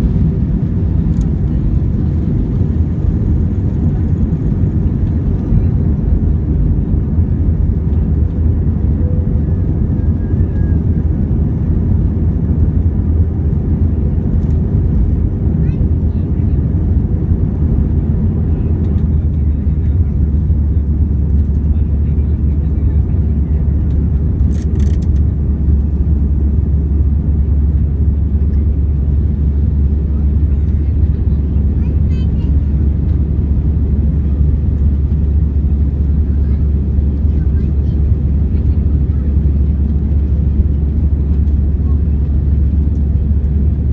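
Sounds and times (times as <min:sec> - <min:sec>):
airliner cabin engine rumble: 0:00.0 - 0:43.9.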